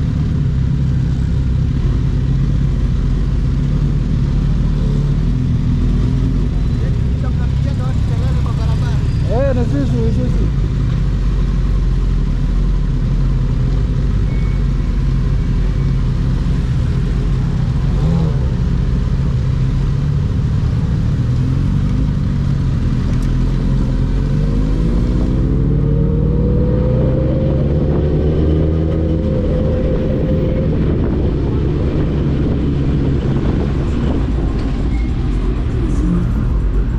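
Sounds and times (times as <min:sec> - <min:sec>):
motorcycle engines at speed: 0:00.0 - 0:36.9
wind noise: 0:24.8 - 0:36.9.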